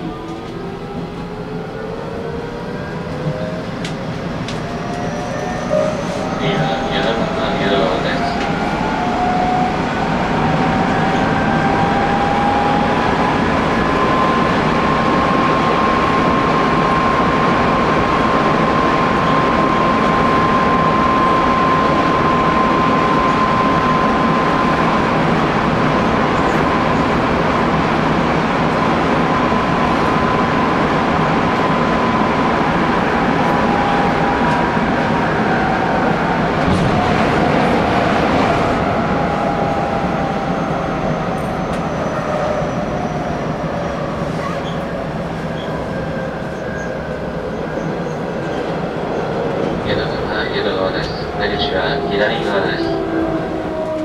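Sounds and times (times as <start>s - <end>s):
train wheels rumbling on rails: 0.0s - 54.0s
train motor whine: 51.4s - 54.0s.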